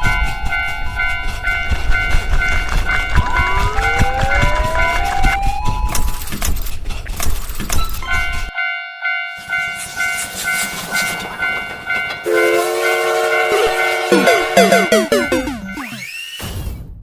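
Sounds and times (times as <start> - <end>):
train rumbling and clattering: 0.0 - 8.5, 10.2 - 14.0
railroad crossing signal dinging: 10.9 - 15.9.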